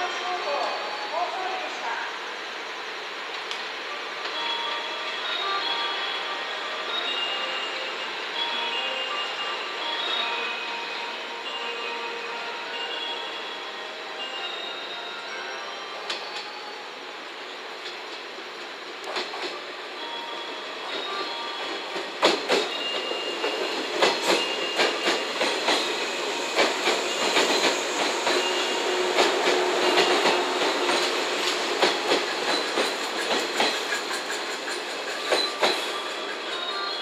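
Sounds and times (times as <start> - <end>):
train wheels clacking over rail joints: 21.7 - 36.7.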